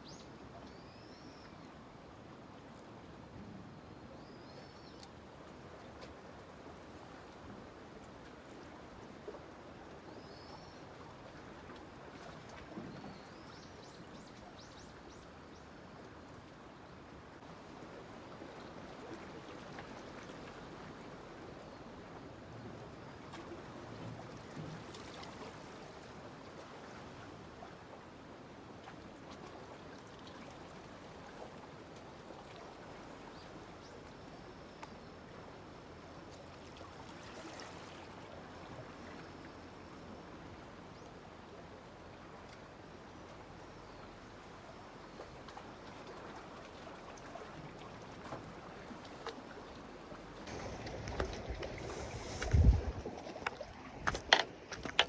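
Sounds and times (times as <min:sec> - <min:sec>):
sea water washing against breakwater: 0:50.2 - 0:55.0.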